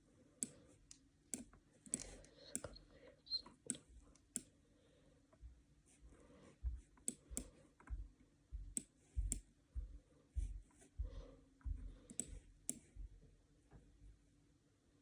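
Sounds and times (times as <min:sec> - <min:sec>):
sharp clicks of computer controls: 0:00.4 - 0:04.6, 0:07.0 - 0:08.1, 0:08.7 - 0:09.5, 0:12.0 - 0:12.9
soft low handling thuds: 0:07.9 - 0:13.2.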